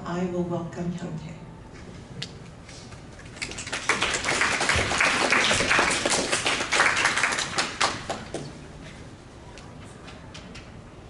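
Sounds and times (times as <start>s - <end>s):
audience applauding: 3.4s - 8.5s.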